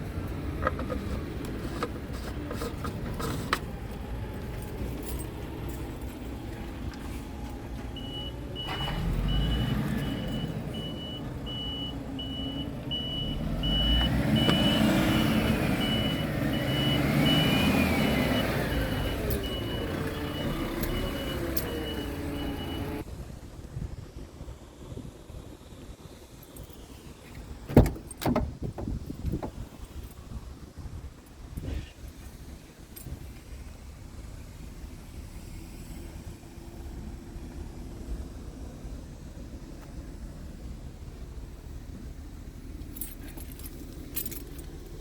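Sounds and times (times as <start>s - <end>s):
reversing alarm beeping: 8.0s - 23.0s.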